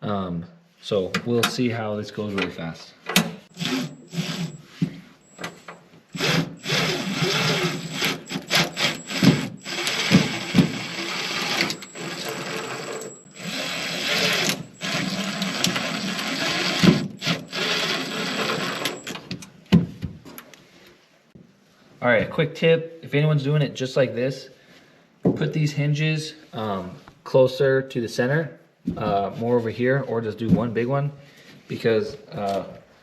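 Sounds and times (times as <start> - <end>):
power drill driving screws: 3.5 - 19.4
drill clicks: 3.5 - 19.5.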